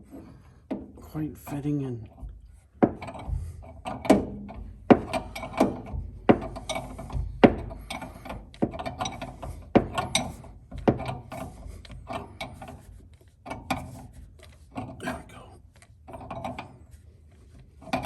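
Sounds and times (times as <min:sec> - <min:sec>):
sharp metal knocks: 0:02.8 - 0:11.4.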